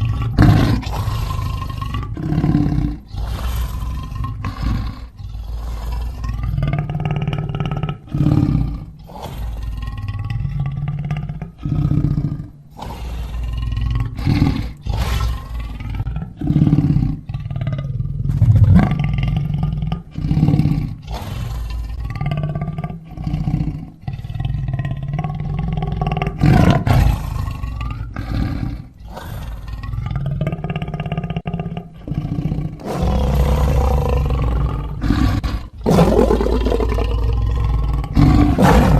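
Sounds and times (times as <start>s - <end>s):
lion roaring: 0.0s - 38.9s.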